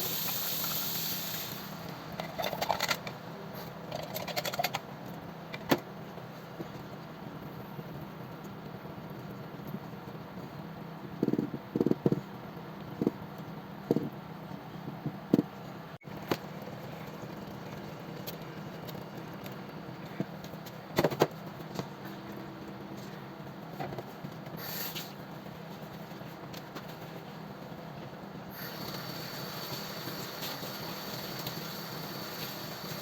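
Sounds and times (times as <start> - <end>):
brief hiss: 24.6 - 25.2.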